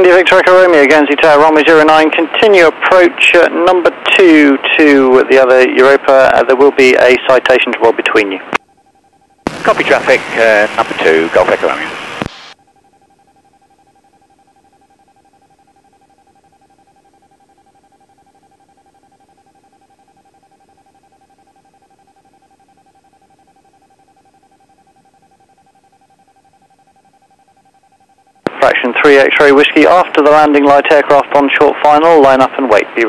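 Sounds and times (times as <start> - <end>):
fluttering electrical whine: 8.6 - 28.5.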